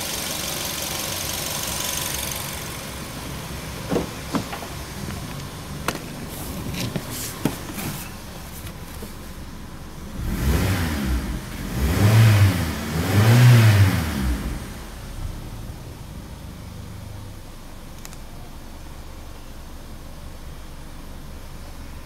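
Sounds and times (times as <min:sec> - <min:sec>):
car engine idling and revving: 0:00.0 - 0:22.0
sharp clicks and knocks: 0:03.9 - 0:08.0.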